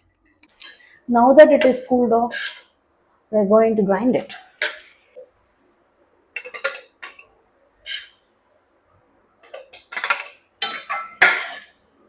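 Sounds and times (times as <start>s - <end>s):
utensils and dishes clinking: 6.4s - 7.2s, 9.4s - 11.7s.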